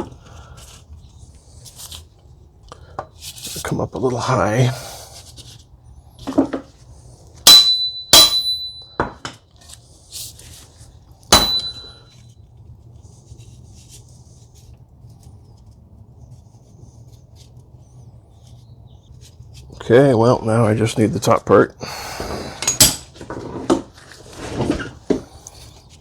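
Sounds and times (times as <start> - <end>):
hammer striking metal: 7.4 - 9.3, 11.3 - 12.0, 22.6 - 23.1.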